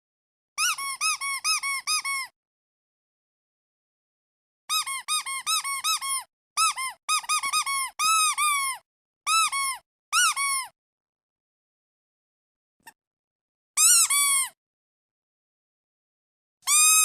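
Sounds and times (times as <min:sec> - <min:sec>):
rubber duck squeaking: 0:00.6 - 0:02.3, 0:04.7 - 0:10.7, 0:13.8 - 0:14.6, 0:16.7 - 0:17.0.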